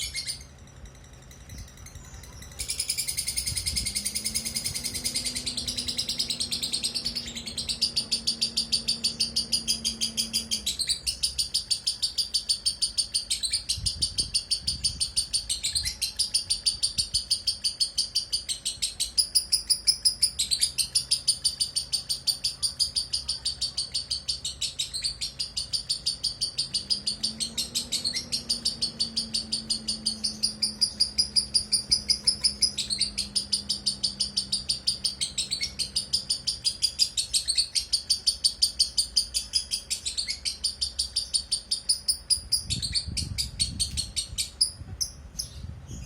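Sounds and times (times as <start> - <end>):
low rumble: 0.0 - 11.6
lovebird chirping: 0.0 - 46.0.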